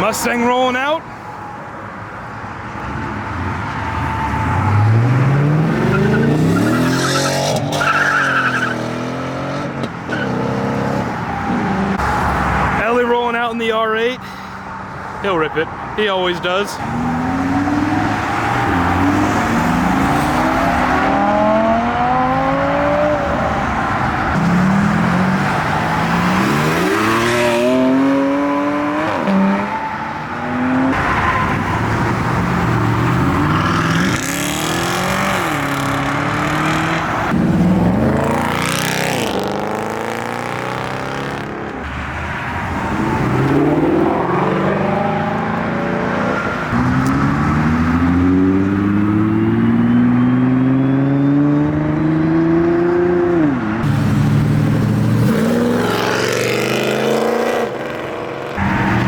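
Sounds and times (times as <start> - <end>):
car engines revving hard: 2.8 - 12.8, 16.8 - 59.0.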